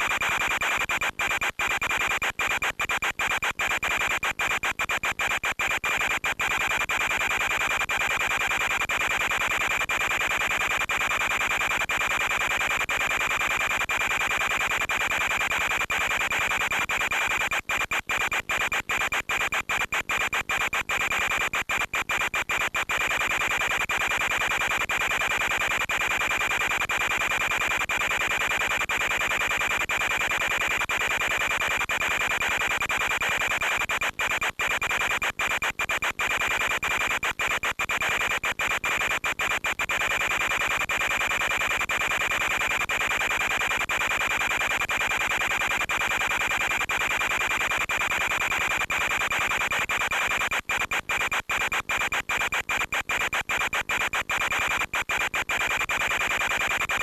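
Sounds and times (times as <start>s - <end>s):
static hiss: 46.4s - 57.0s.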